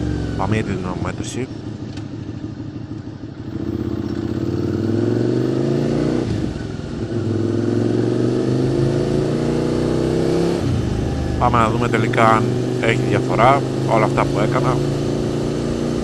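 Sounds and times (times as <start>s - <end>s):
motorcycle accelerating: 0.0s - 16.0s.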